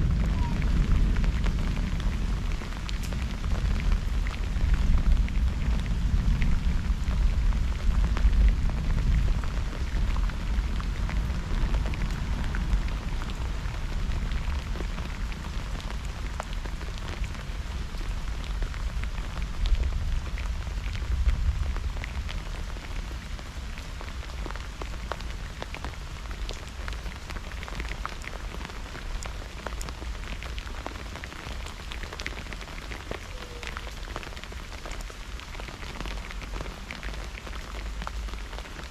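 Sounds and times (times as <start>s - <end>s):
deep thunder rumble: 0.0s - 16.4s
steady rain: 0.0s - 38.9s.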